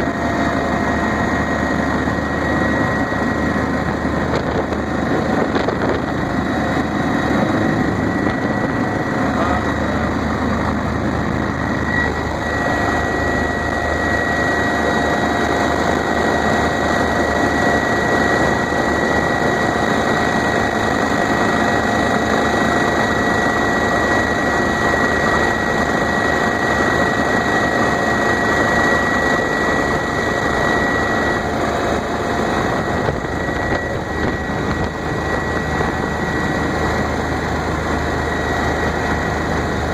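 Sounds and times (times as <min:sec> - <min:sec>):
helicopter engine and rotor drone: 0:00.0 - 0:39.9
high whine: 0:00.0 - 0:39.9.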